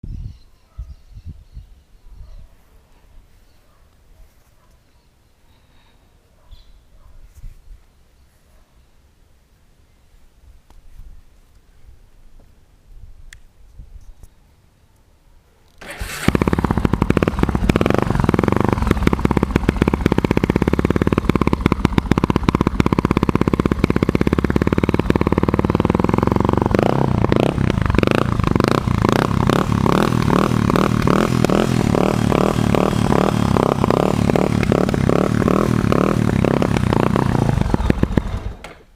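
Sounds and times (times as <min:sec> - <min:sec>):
motorcycle engine starting and running: 0:15.8 - 0:38.9.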